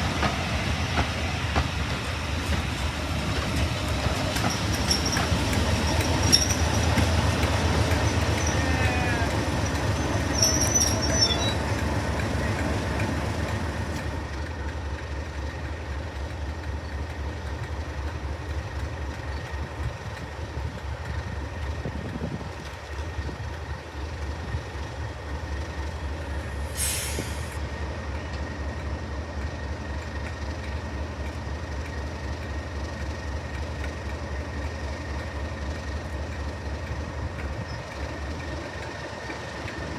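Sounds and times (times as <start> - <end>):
wheels squealing on rails: 0.0 - 14.1
diesel locomotive engine throbbing: 0.0 - 39.9
air hiss: 26.6 - 27.6.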